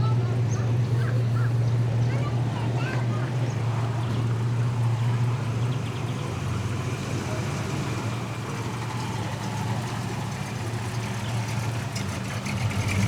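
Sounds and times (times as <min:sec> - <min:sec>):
car engine running at low revs: 0:00.0 - 0:13.0.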